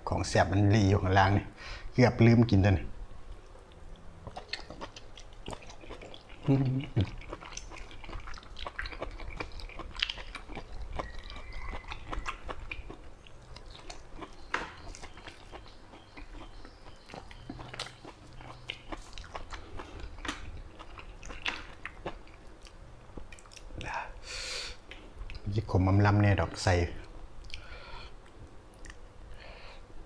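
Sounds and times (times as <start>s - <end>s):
man chewing with wet smacks: 3.3s - 23.9s, 24.8s - 25.5s, 27.0s - 29.0s
sharp chewing clicks: 3.3s - 23.9s.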